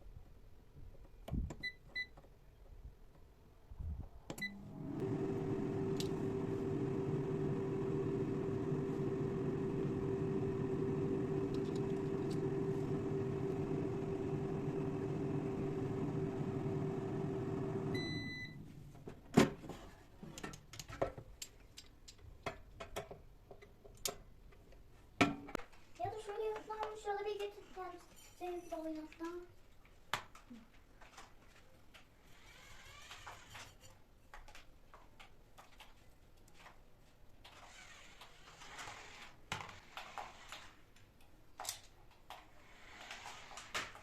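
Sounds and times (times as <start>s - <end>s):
appliance humming drone: 4.4s - 18.6s
short keypad beeps: 18.0s - 18.6s.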